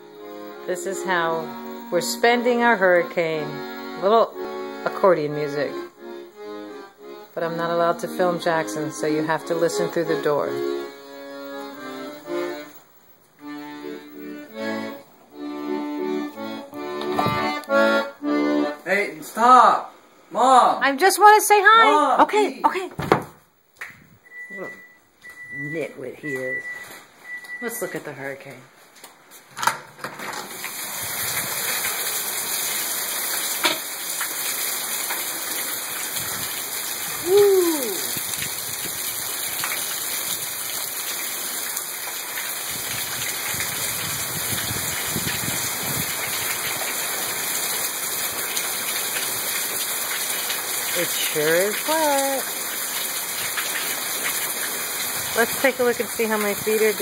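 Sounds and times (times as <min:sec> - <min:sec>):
muffled accordion playing: 0:00.0 - 0:19.2
heavy rain pouring: 0:30.3 - 0:57.0.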